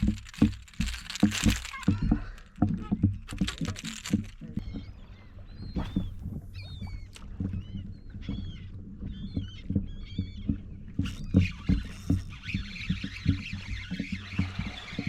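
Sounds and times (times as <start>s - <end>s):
seabirds crying: 4.4s - 15.0s.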